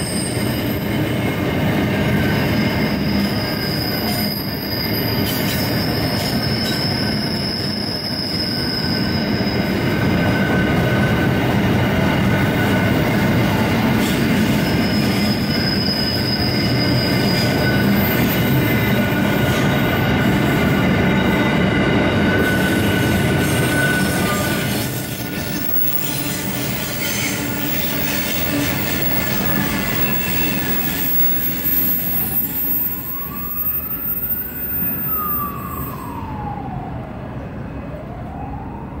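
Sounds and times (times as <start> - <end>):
wheel squeal: 0.0 - 36.1
freight train rolling over rails: 0.0 - 38.3
siren wailing: 28.2 - 39.0.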